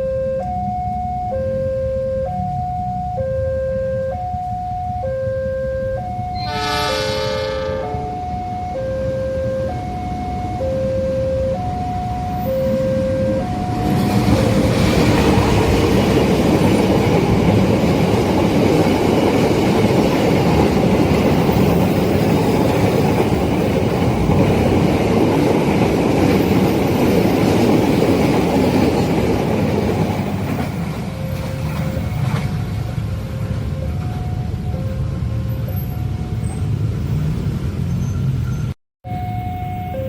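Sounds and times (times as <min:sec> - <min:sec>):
two-tone crossing alarm: 0:00.0 - 0:24.8, 0:30.2 - 0:37.3, 0:39.0 - 0:40.0
train wheels rushing on rails: 0:13.3 - 0:34.2.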